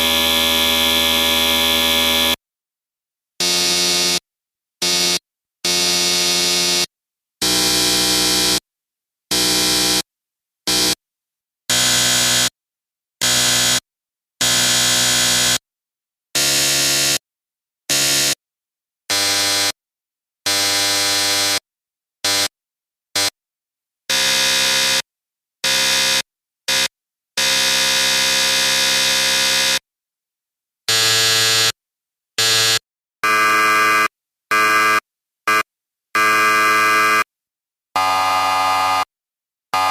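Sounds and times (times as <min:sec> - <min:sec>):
electric buzzer buzzing: 0:00.0 - 0:02.4, 0:03.4 - 0:04.2, 0:04.8 - 0:08.6, 0:09.3 - 0:10.1, 0:10.7 - 0:11.0, 0:11.7 - 0:12.5, 0:13.2 - 0:13.8, 0:14.4 - 0:15.6, 0:16.4 - 0:17.2, 0:24.1 - 0:29.8, 0:30.9 - 0:31.8, 0:32.4 - 0:37.3, 0:38.0 - 0:39.1.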